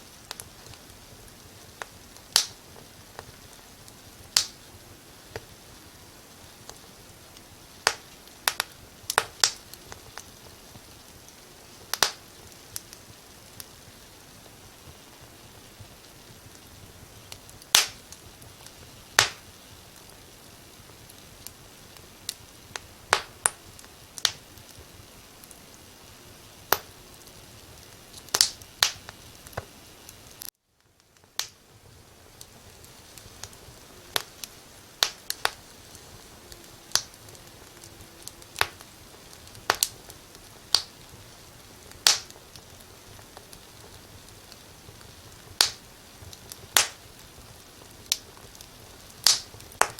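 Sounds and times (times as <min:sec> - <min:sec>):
faint steady hiss: 0:00.0 - 0:49.9
wood fire crackling: 0:00.0 - 0:49.9.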